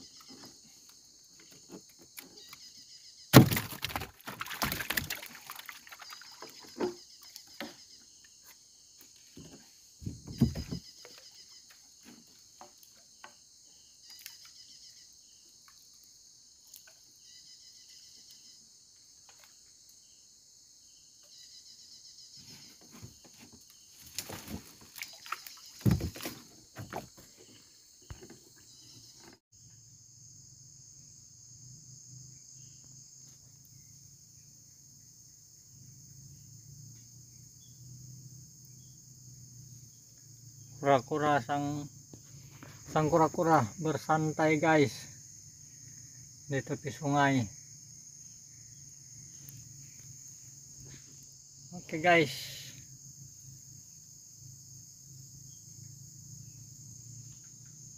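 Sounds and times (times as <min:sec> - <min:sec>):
crickets and insects chirping: 0:00.0 - 0:57.9
knocking and splashing: 0:03.4 - 0:07.9, 0:09.4 - 0:11.2, 0:22.8 - 0:28.5.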